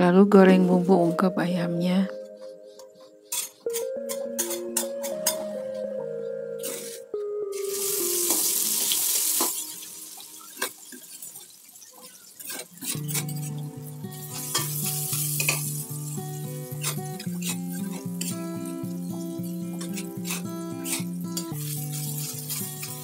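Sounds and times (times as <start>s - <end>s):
background music: 0.0s - 11.2s, 12.9s - 23.0s
spice paste sizzling in hot oil: 7.6s - 23.0s
metal spatula scraping a wok: 19.8s - 23.0s.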